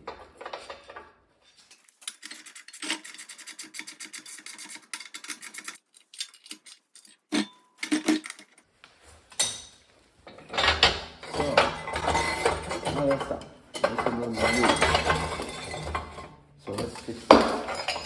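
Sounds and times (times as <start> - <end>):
rapid scraping clicks on metal: 1.8 - 7.2.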